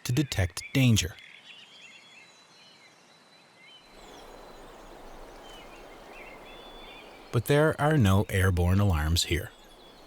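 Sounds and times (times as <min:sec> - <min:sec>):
bird chirps: 0:00.0 - 0:03.0, 0:03.6 - 0:10.0
background hiss: 0:04.0 - 0:10.0.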